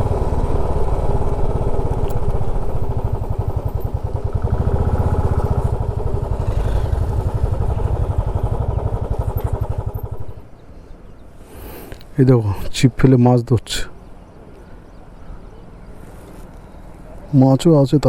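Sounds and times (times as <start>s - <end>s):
motorcycle engine idling: 0.0s - 11.2s.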